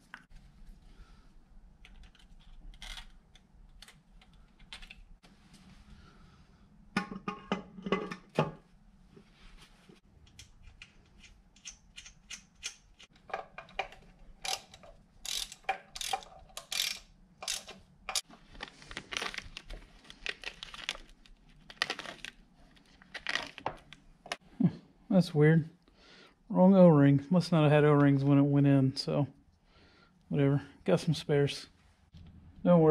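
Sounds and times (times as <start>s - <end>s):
tools clicking and tapping: 10.2s - 18.3s.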